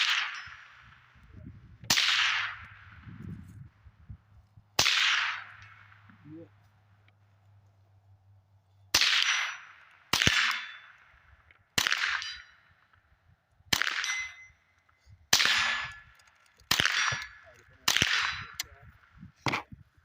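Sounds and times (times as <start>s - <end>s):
suppressed rifle shots: 0.0s - 1.1s, 1.8s - 3.1s, 4.8s - 6.1s, 8.9s - 13.0s, 13.7s - 14.5s, 15.3s - 18.8s.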